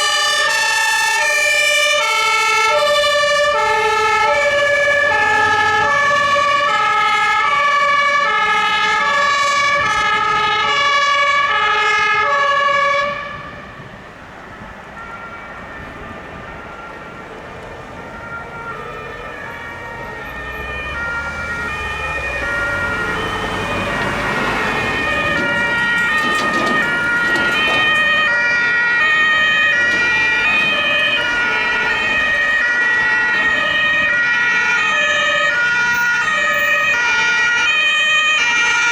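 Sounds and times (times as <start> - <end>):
two-tone emergency vehicle horns: 0.0 - 38.9
passing vehicle engine and tyres: 12.9 - 37.6.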